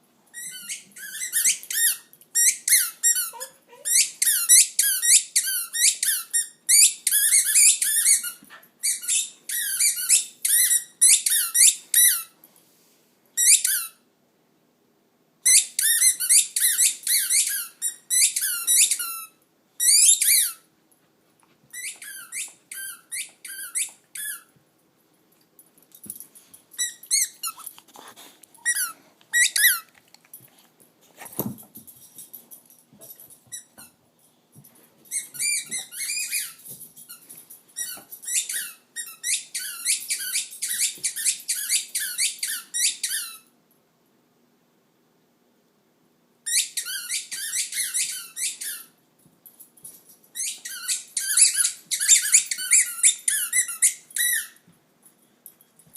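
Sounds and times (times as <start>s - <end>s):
dog whining in high-pitched squeals: 0.3s - 12.3s, 35.1s - 36.7s, 46.5s - 48.9s, 50.4s - 54.6s.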